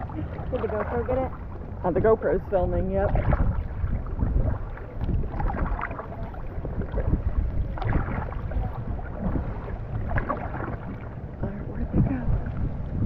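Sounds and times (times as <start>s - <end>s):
paddles splashing water: 0.0s - 12.7s
wind buffeting microphone: 0.0s - 13.0s.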